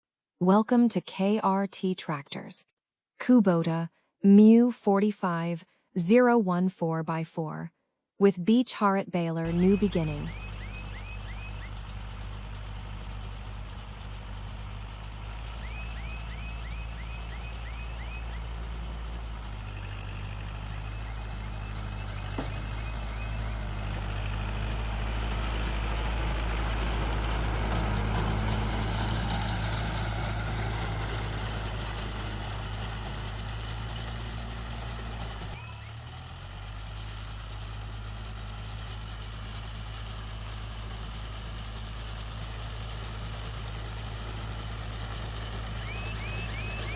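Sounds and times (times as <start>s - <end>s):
tractor diesel engine running: 9.4s - 46.9s
baler machinery rushing noise: 9.5s - 36.1s.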